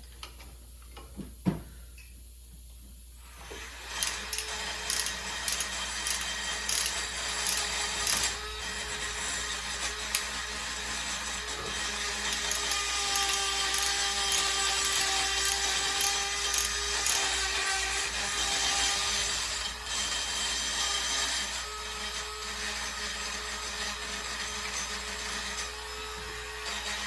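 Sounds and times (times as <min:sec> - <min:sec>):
power tool wire wheel scraping: 0:03.5 - 0:21.5.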